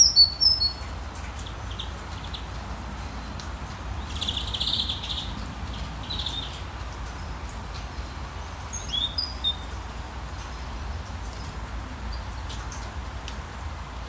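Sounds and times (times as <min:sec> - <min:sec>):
birds whistled chirps: 0:00.0 - 0:00.8, 0:08.7 - 0:09.7.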